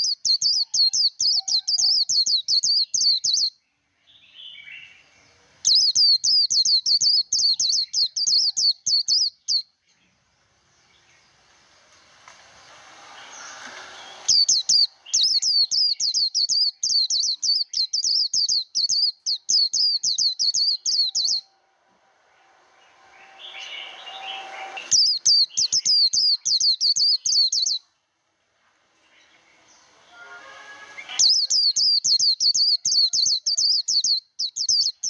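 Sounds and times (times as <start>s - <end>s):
bird singing fast high notes: 12.6s - 27.8s, 29.1s - 34.0s.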